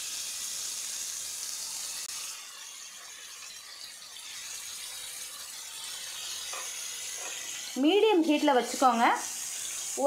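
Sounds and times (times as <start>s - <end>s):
chicken sizzling in oil: 0.0s - 10.0s.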